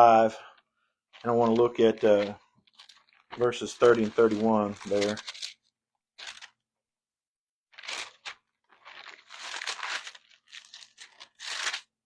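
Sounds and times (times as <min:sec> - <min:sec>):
thin pages turning and rustling: 0:01.1 - 0:06.6, 0:07.7 - 0:11.9.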